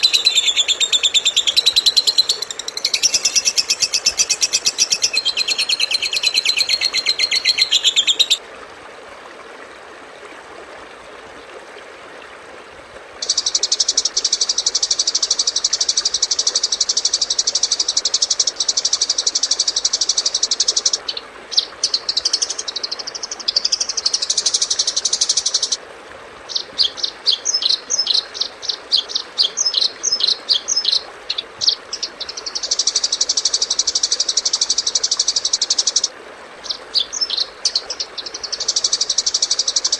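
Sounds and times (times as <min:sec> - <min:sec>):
songbird trilling and singing: 0:00.0 - 0:08.4, 0:26.5 - 0:39.9.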